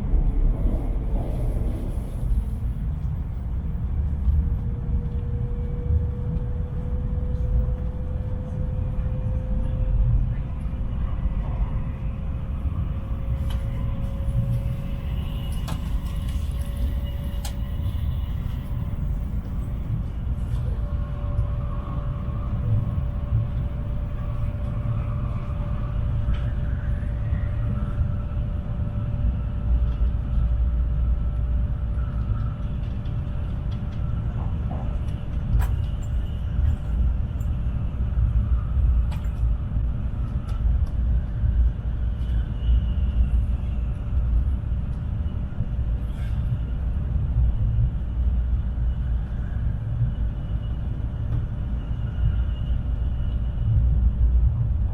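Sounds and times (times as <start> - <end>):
faint hum: 0.0 - 54.9
train cabin low rumble: 0.0 - 54.9.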